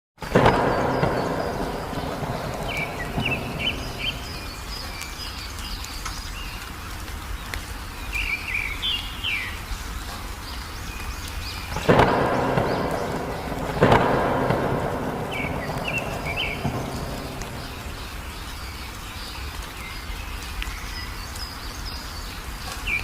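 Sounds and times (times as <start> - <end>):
songbirds chirping: 0.2 - 23.0
low outdoor rumble: 0.3 - 5.8, 11.5 - 19.6
loud low thunder-like rumble: 0.4 - 5.0, 11.7 - 18.6.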